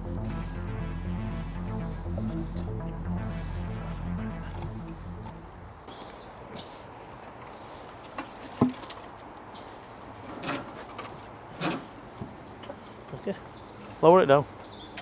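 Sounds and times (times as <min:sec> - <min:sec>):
background music: 0:00.0 - 0:05.9.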